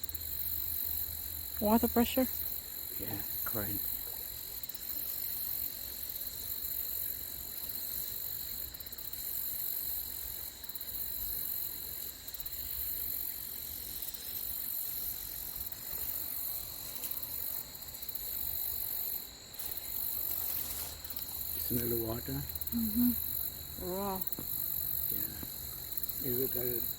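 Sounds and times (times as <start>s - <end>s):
insects trilling: 0.0s - 26.9s
creek flowing: 19.6s - 26.9s.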